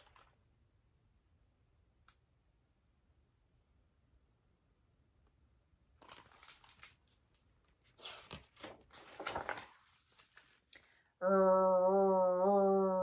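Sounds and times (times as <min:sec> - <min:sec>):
paper page rustling: 0:00.0 - 0:00.4, 0:06.0 - 0:10.9.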